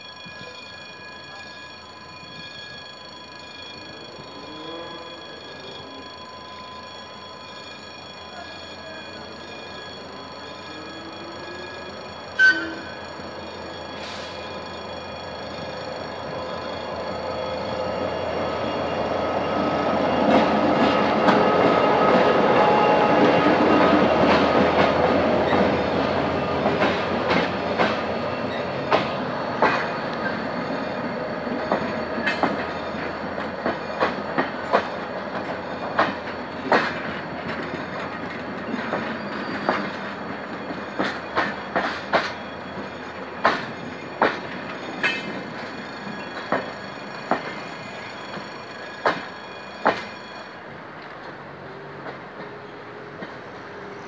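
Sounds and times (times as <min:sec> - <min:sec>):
diesel locomotive engine: 0:00.0 - 0:54.0
wheel clacks over rail joints: 0:31.6 - 0:45.7.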